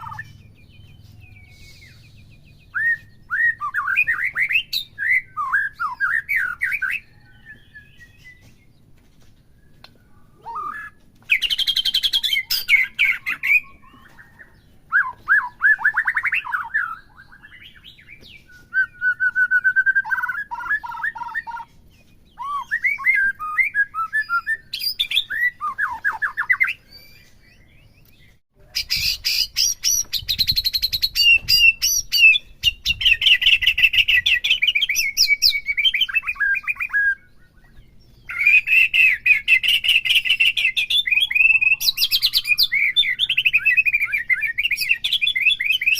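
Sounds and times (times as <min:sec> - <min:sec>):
bird singing whistled phrases: 0:00.0 - 0:08.6, 0:09.6 - 0:21.7, 0:22.3 - 0:45.9.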